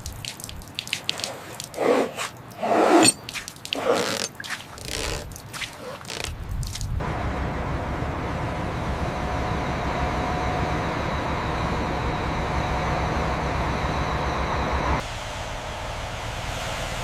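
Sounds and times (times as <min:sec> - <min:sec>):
mechanical rumble: 0:06.9 - 0:17.0
thin steady whine: 0:07.0 - 0:17.0.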